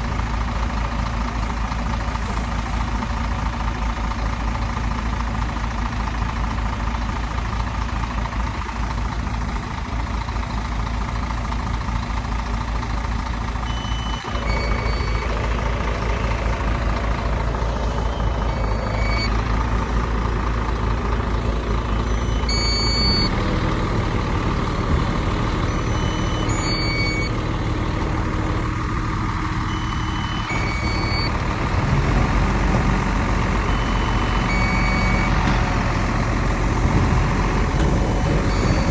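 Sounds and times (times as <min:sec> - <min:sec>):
heavy diesel machinery running: 0:00.0 - 0:38.9
reversing alarm beeps: 0:13.6 - 0:15.7, 0:17.8 - 0:19.4, 0:21.9 - 0:23.4, 0:24.2 - 0:36.9, 0:38.3 - 0:38.9.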